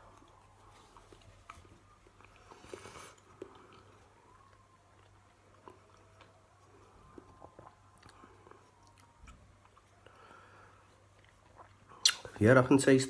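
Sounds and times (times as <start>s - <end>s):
person chewing: 0.0s - 12.3s
low steady hum: 0.0s - 13.0s
mouth clicks: 12.0s - 12.4s.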